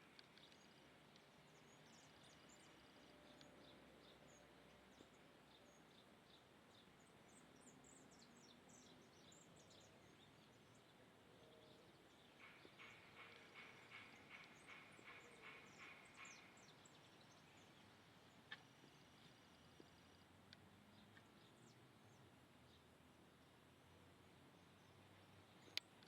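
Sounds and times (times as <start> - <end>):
small birds chirping: 0.0 - 23.7
rapid bird calls: 12.4 - 17.7.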